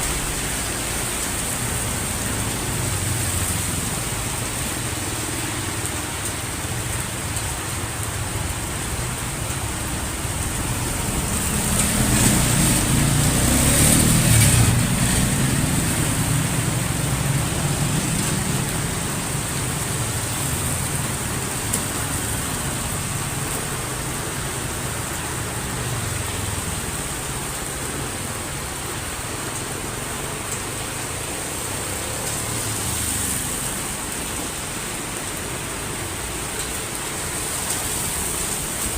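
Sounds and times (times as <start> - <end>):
heavy rain falling: 0.0 - 38.9
vehicle passing on wet road: 0.0 - 38.9.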